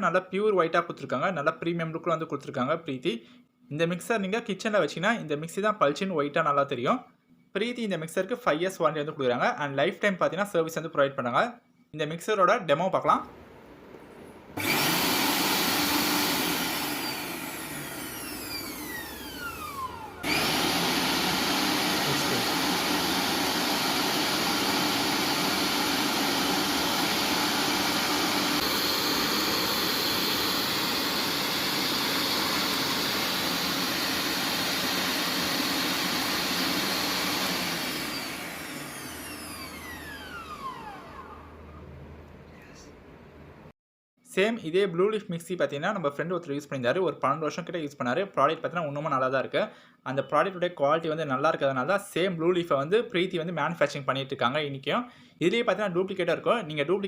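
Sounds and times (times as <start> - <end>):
mixer grinder motor running: 13.3 - 42.7
motor winding down whine: 14.5 - 42.8.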